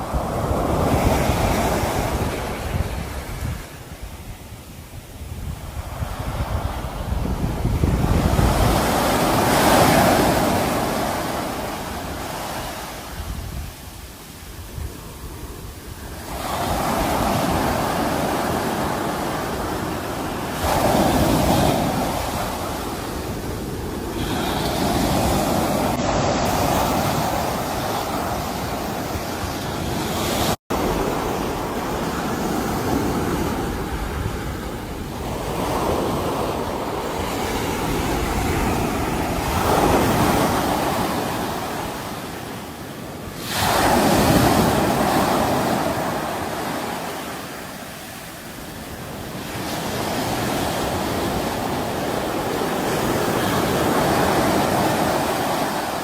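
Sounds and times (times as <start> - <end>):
sea waves washing onto shore: 0.0 - 56.0.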